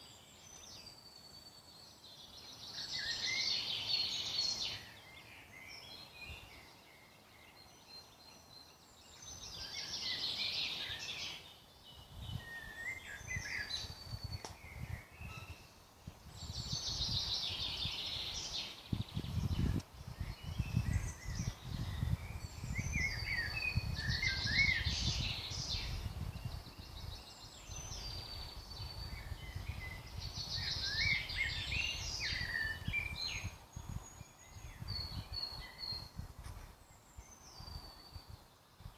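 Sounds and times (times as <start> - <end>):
songbird singing: 0.0 - 38.9
bird chirps and whistles: 14.7 - 15.7.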